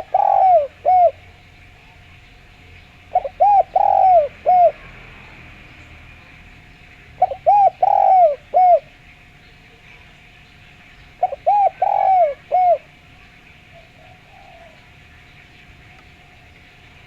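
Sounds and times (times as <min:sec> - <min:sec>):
dove cooing: 0:00.0 - 0:05.0, 0:07.0 - 0:09.2, 0:11.1 - 0:15.2.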